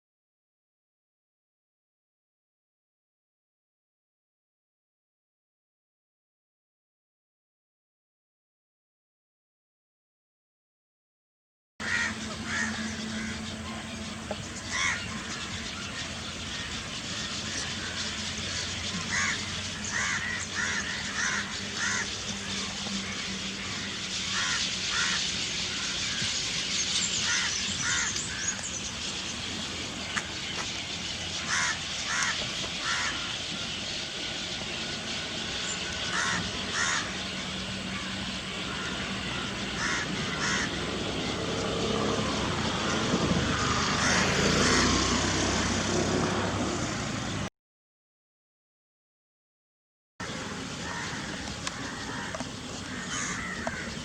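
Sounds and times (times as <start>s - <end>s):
harsh caw-like bird calls: 11.8s - 46.2s, 50.2s - 54.0s
birds chattering and calling: 11.8s - 47.5s, 50.2s - 54.0s
vehicle passing: 11.8s - 47.5s.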